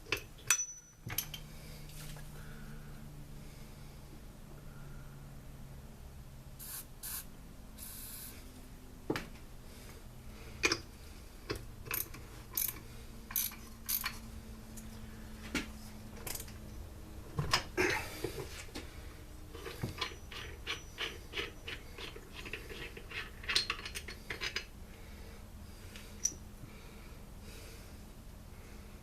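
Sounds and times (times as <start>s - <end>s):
metal tool clicks and knocks: 0.1s - 1.5s
short hisses or rasps: 6.6s - 8.4s.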